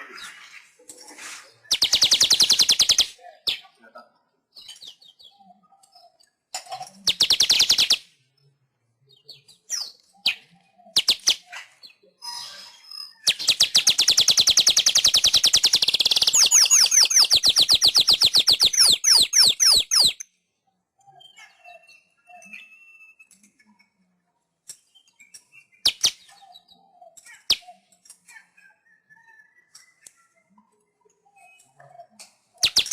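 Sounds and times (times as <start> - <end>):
weaver bird singing: 9.2 - 20.2, 31.1 - 32.9.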